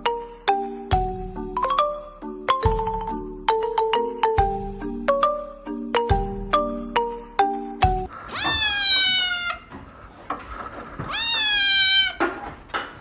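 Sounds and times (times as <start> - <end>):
mallet instrument notes: 0.0 - 8.1
cat meowing: 8.3 - 9.7, 11.1 - 12.4.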